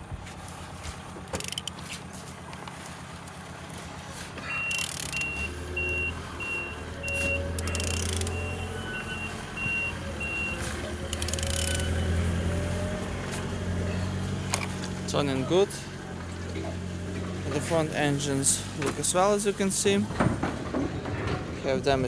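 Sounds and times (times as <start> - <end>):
diesel engine idling: 0.0 - 22.0
short electronic warning beeps: 4.4 - 12.2.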